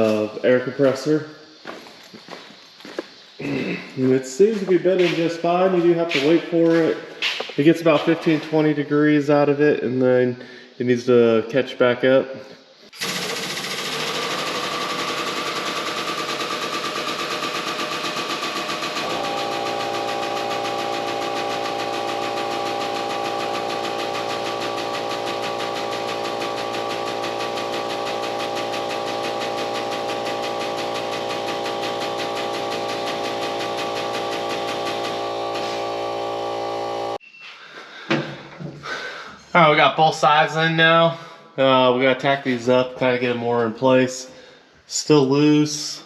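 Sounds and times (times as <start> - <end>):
air compressor running: 0.0 - 1.1, 1.7 - 8.7, 12.9 - 37.2
steady hum: 18.6 - 37.2.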